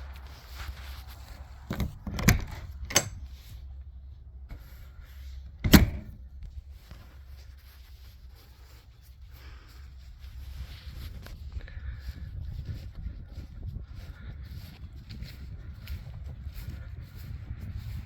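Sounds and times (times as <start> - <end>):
door banging: 1.7 - 3.2, 5.6 - 6.2
door clunks: 1.7 - 3.3, 5.6 - 6.2.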